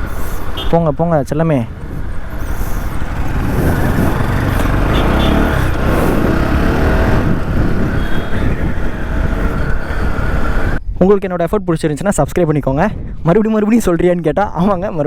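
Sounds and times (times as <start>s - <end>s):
wind noise: 0.0s - 15.0s
motorcycle engine: 1.4s - 10.8s.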